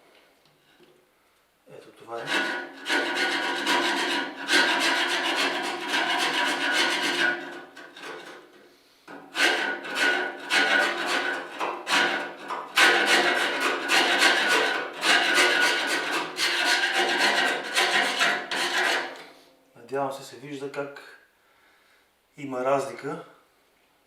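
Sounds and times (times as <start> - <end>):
chisel scraping metal: 2.2 - 19.4.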